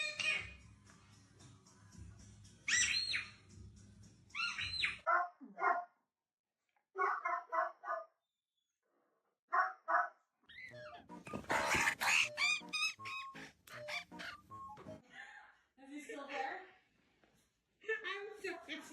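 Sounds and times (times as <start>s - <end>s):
falling squawk-like calls: 10.5s - 15.0s.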